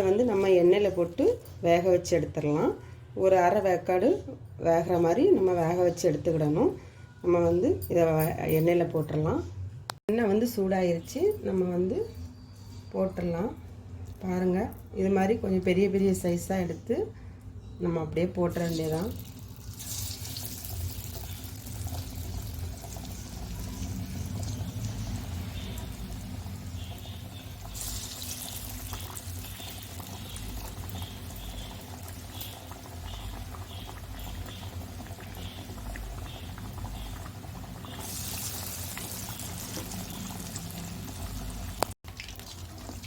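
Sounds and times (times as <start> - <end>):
batter sizzling in hot oil: 18.6 - 43.0.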